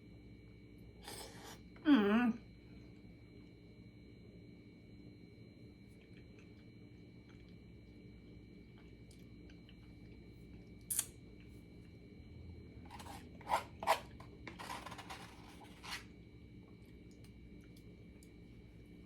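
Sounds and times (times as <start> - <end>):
eating scrapes and crunches: 12.9 - 16.1.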